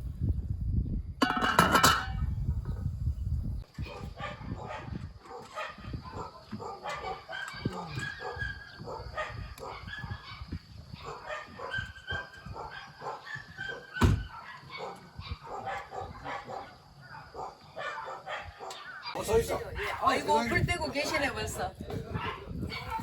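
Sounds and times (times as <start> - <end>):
dog barking and yipping: 3.8 - 19.2, 22.2 - 23.0
loud thump: 14.0 - 14.3.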